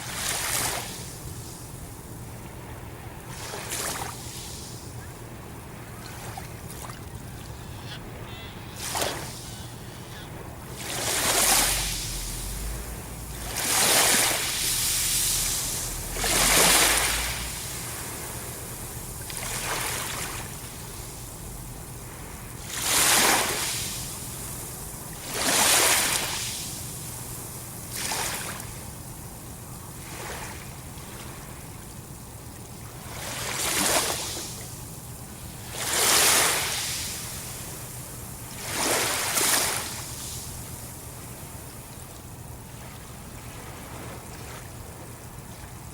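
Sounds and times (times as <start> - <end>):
sea waves washing onto shore: 0.0 - 45.9
faint low hum: 5.0 - 22.7.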